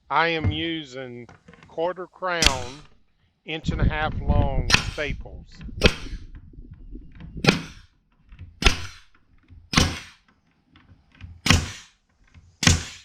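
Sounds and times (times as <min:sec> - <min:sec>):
stapler firing into wood: 0:02.4 - 0:02.9, 0:04.7 - 0:05.0, 0:07.4 - 0:07.8, 0:08.6 - 0:10.3, 0:11.4 - 0:12.0, 0:12.6 - 0:13.0.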